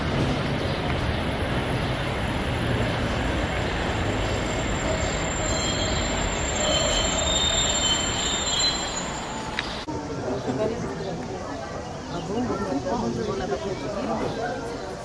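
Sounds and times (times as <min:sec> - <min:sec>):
electric railcar rumbling past: 0:00.0 - 0:10.8
high metallic squeal: 0:04.4 - 0:09.8.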